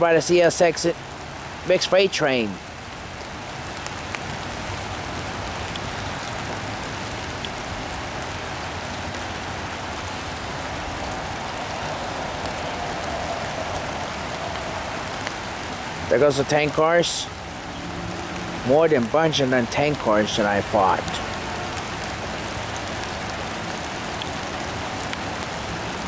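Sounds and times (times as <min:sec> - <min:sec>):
steady rain falling: 0:00.0 - 0:26.0
freight train rolling past: 0:09.9 - 0:16.3.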